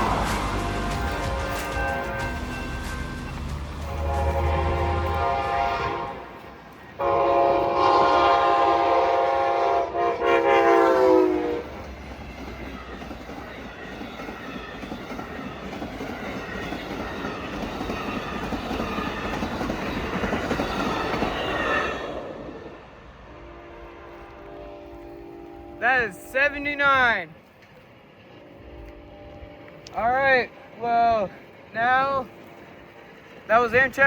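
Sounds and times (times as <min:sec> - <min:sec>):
train horn: 0:00.0 - 0:11.8, 0:23.3 - 0:26.6, 0:28.2 - 0:30.5
train passing at speed: 0:00.0 - 0:34.0.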